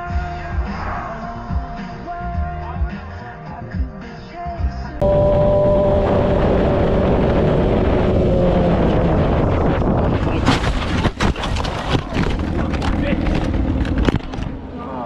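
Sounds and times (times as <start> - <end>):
whine falling in pitch: 5.0 - 10.1
loud vehicle noise: 5.0 - 10.3, 12.2 - 15.0
wind buffeting microphone: 5.0 - 14.6.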